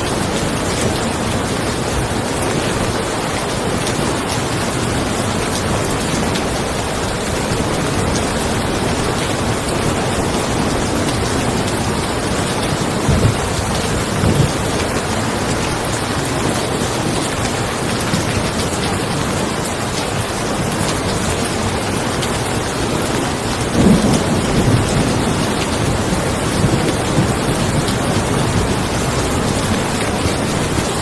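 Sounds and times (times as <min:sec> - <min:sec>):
rain falling on a car: 0:00.0 - 0:31.0
thunder: 0:08.8 - 0:15.1, 0:23.4 - 0:30.5.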